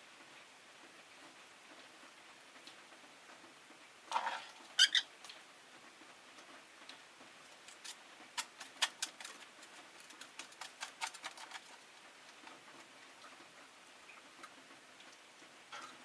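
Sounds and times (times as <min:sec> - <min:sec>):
lovebirds clicking and tapping: 0:07.6 - 0:11.8.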